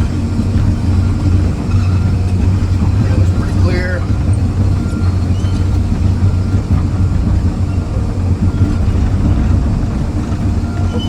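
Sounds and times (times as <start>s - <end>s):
excavator diesel engine rumble: 0.0s - 11.0s.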